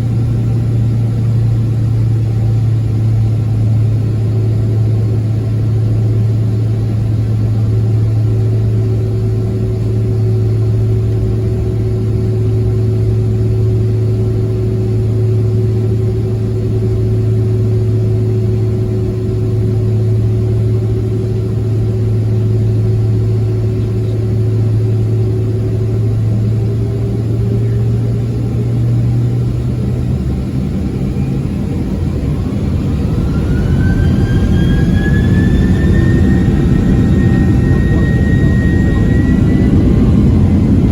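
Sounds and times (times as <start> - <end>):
jet engine hum in cabin: 0.0 - 40.9
engine whine rising in pitch: 7.6 - 40.9.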